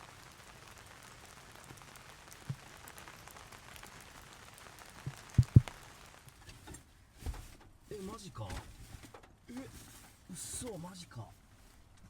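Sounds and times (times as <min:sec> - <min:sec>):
heavy rain falling: 0:00.0 - 0:06.4
low thumps: 0:05.1 - 0:05.8.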